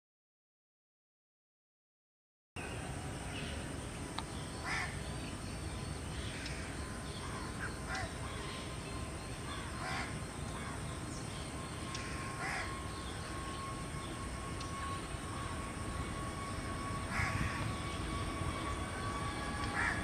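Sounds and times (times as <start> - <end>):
jet engine whine: 2.6 - 20.0
harsh bird calls: 4.3 - 14.2, 17.0 - 20.0.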